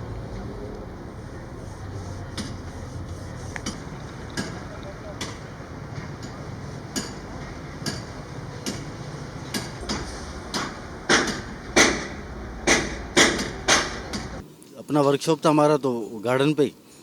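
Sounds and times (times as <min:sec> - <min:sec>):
low steady hum: 0:00.0 - 0:14.4
hammer blows on metal: 0:01.0 - 0:14.4.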